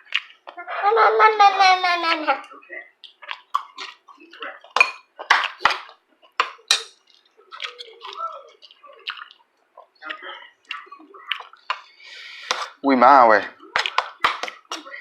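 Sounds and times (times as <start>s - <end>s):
utensils clinking against dishes: 6.4s - 7.8s.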